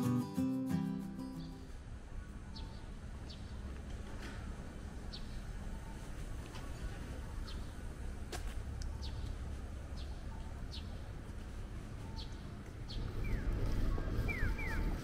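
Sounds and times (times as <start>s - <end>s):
city street noise rumble: 0.0s - 15.0s
small bird chirping: 12.0s - 15.0s.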